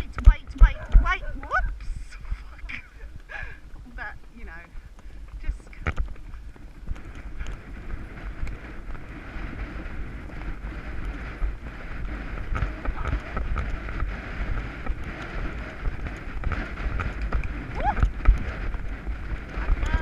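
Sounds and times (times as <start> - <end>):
wind buffeting microphone: 0.0 - 20.0
knocks from hooves and tack: 3.7 - 20.0.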